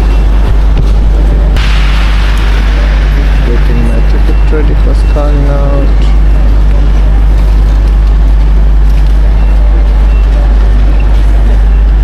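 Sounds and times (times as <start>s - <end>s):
loud low drone: 0.0s - 12.0s
wash of noise: 0.4s - 9.3s.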